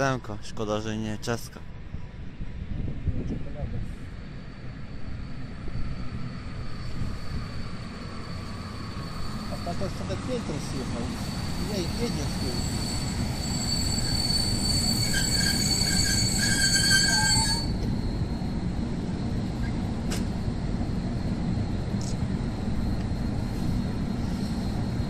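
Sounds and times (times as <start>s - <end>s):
train rolling with low rumble: 0.0s - 25.0s
high-pitched wheel squeal: 5.9s - 18.4s.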